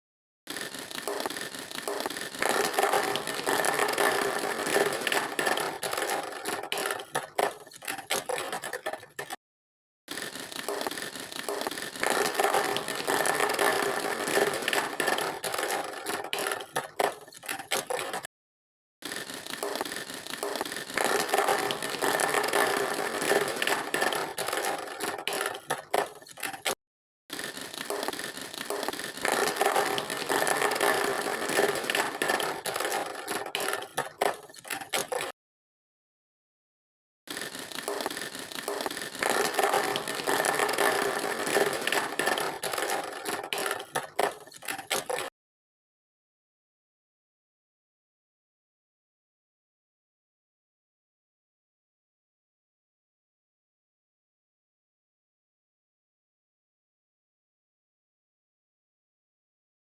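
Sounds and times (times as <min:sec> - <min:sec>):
plastic toy vehicles scraping: 0:00.5 - 0:09.4, 0:10.1 - 0:18.3, 0:19.0 - 0:35.4, 0:37.3 - 0:45.3.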